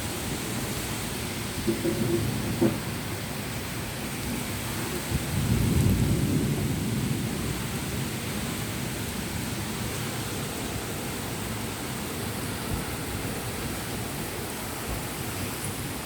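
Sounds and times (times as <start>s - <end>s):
steady rain: 0.0s - 16.0s
low rumble of thunder: 1.6s - 3.2s, 4.2s - 10.9s.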